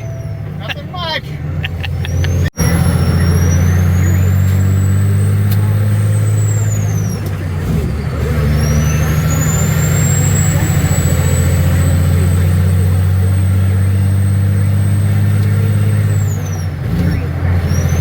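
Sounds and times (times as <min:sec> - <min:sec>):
diesel truck engine pulling: 0:00.0 - 0:18.0
high whine: 0:01.6 - 0:07.6.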